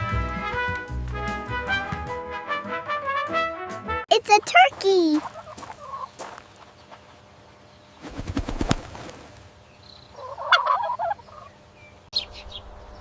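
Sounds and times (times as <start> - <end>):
turkey gobbling: 5.2 - 6.1, 10.1 - 11.5.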